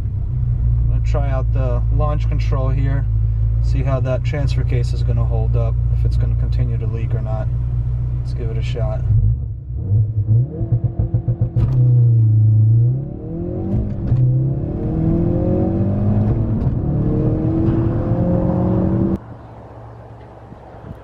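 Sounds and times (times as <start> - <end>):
car engine revving and accelerating: 9.1 - 19.2.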